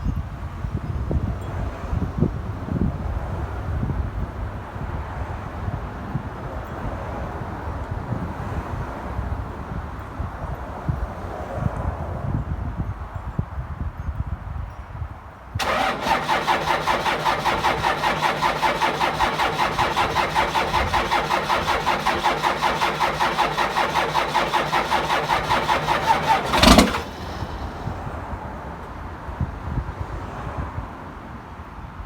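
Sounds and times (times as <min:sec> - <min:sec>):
engine loud burst: 0:15.6 - 0:28.2
starter cranking diesel engine: 0:15.6 - 0:28.3.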